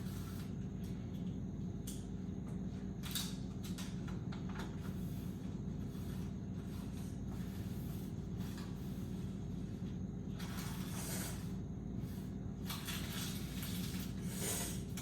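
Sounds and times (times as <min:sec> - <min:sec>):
steady low hum: 0:00.0 - 0:15.0
hiss: 0:10.8 - 0:12.2, 0:14.2 - 0:15.0.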